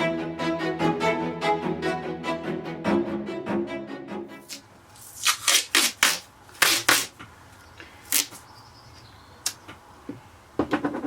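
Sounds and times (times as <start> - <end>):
crafting materials rustling and scraping: 4.5 - 7.3.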